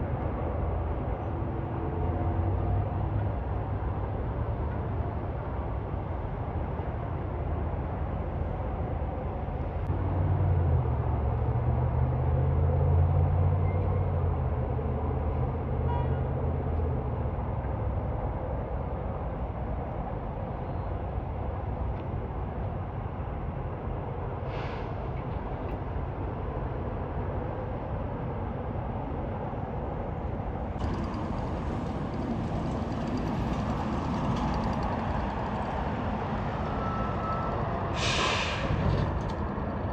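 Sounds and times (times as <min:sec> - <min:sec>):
road traffic noise: 0:00.0 - 0:39.9
heavy truck engine drone: 0:16.4 - 0:39.9.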